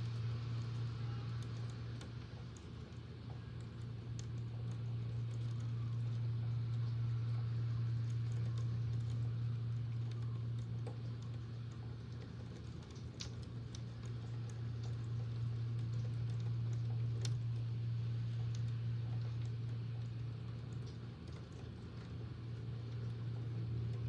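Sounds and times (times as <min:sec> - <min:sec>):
electric fan humming: 0:00.0 - 0:24.0
rain: 0:00.0 - 0:24.0.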